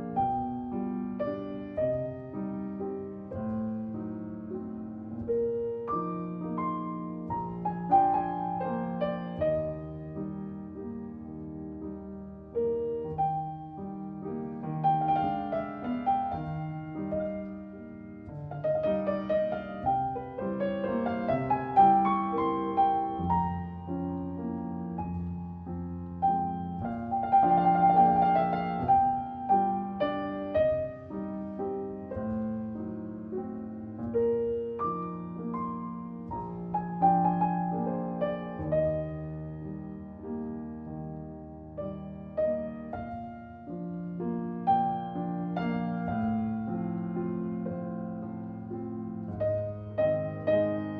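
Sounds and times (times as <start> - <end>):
slow classical piano music: 0.0 - 50.9.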